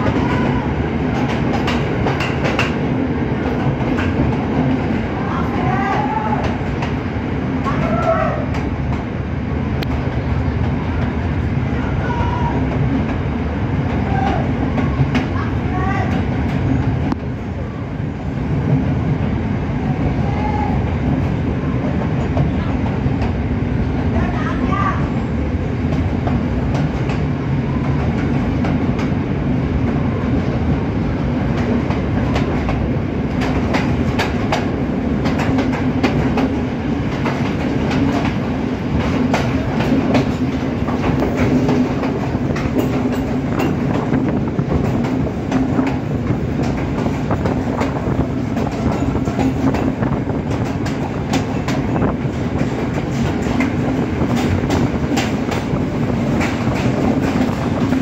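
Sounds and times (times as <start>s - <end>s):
wheels clacking over rail joints: 0.0s - 9.1s, 31.5s - 58.0s
train wheels rumbling on rails: 0.0s - 58.0s.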